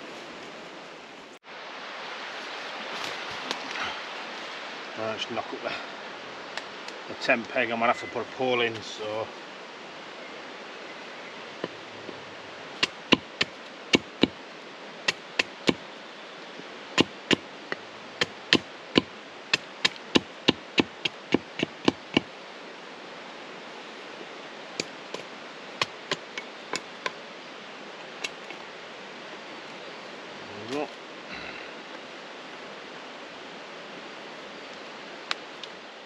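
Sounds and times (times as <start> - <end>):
tent peg being hammered: 12.8 - 14.4, 15.1 - 15.8, 17.0 - 17.5, 18.2 - 22.3, 24.8 - 27.2.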